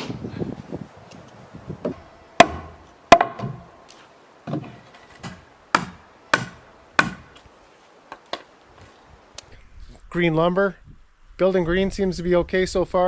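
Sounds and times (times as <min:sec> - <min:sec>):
hammer blows on wooden boards: 0:01.8 - 0:07.4.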